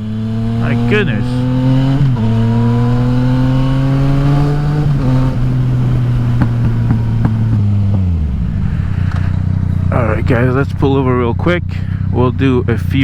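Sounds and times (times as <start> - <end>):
exhaust pops: 4.5 - 12.1.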